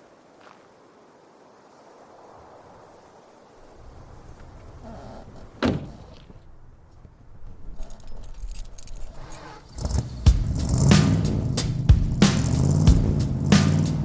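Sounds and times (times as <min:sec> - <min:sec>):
keys jangling: 0:07.8 - 0:09.6.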